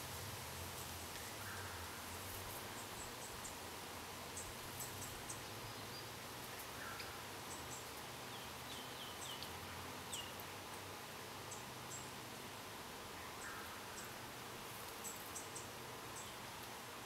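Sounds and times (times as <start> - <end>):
steady outdoor hiss: 0.0 - 17.0
small birds chirping: 4.4 - 10.4.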